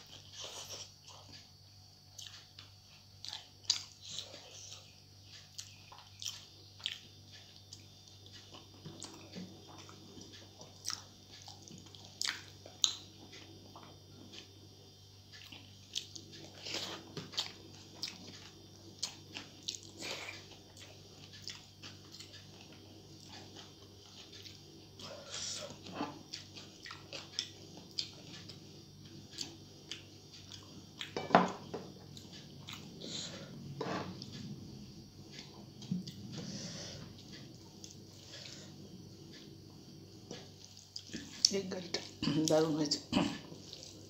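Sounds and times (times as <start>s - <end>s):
faint steady hum: 0.0s - 44.0s
chewing and lip-smacking: 2.1s - 14.6s, 15.3s - 25.1s, 25.7s - 28.6s, 40.6s - 41.6s.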